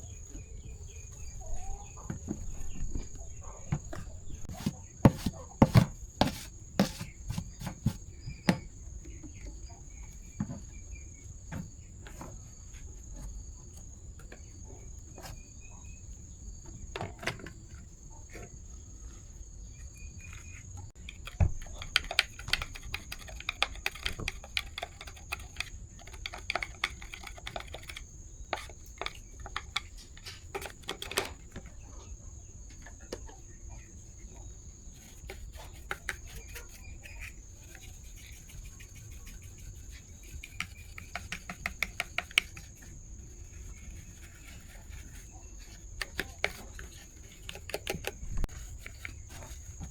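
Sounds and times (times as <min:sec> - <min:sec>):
hand tools clicking and knocking: 0:21.0 - 0:31.7, 0:40.4 - 0:42.8, 0:45.9 - 0:49.9.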